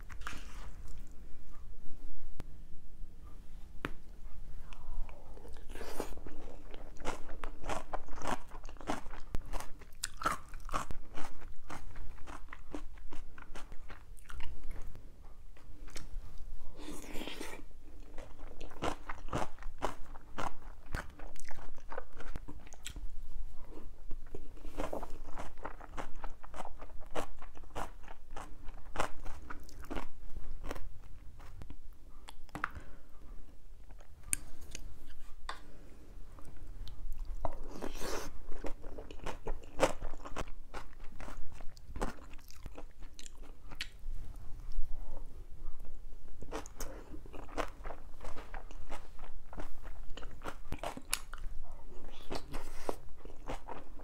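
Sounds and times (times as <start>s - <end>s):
person chewing and crunching food: 0.0s - 1.6s, 4.6s - 35.8s, 36.4s - 45.2s, 45.8s - 54.0s.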